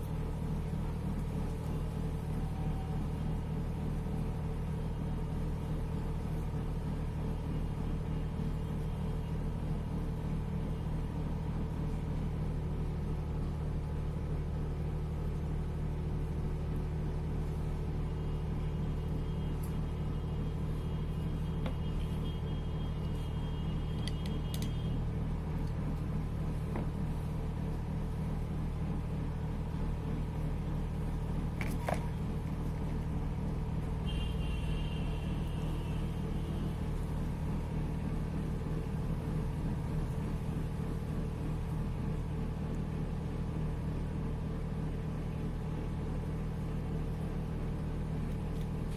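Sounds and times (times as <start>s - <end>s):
low machine hum: 0.0s - 48.9s.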